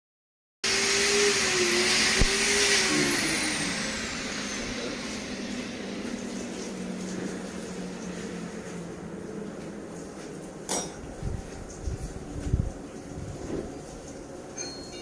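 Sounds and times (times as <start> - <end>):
machine hissing and whining: 0.6 - 9.9.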